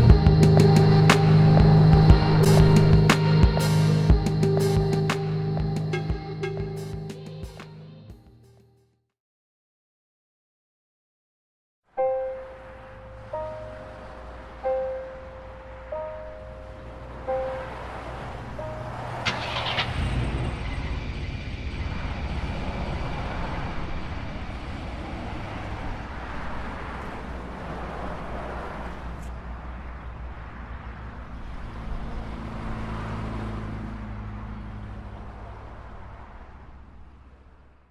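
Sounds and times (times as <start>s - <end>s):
car engine running: 0.0s - 7.1s, 16.7s - 27.6s
car starter motor: 19.2s - 20.7s.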